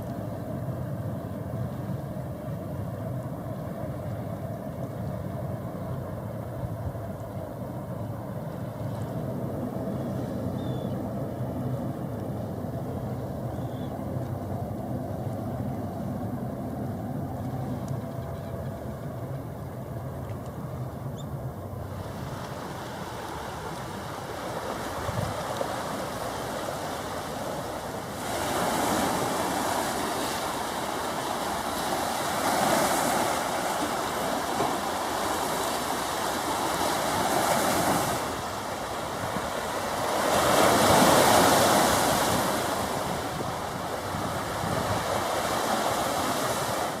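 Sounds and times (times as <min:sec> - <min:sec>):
waves washing against shore: 0:21.8 - 0:47.0.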